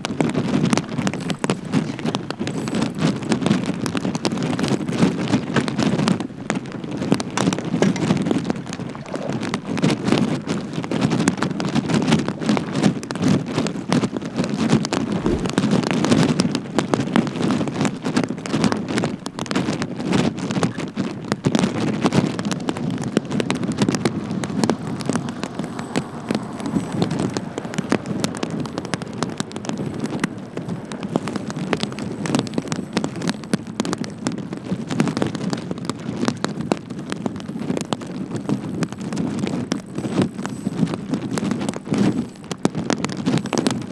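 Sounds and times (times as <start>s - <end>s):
rain pattering hard: 0.0s - 43.9s
wind and water rushing: 15.0s - 15.8s.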